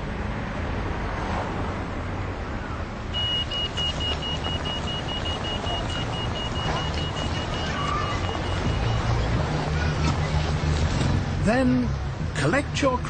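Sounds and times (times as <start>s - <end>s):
street traffic hum: 0.0s - 13.0s
crossing signal beeping: 3.1s - 9.4s.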